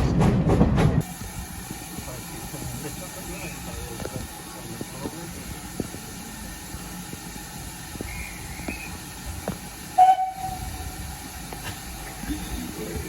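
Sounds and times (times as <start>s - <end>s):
steady hiss: 1.0s - 13.0s
steam locomotive whistle blast: 10.0s - 10.8s.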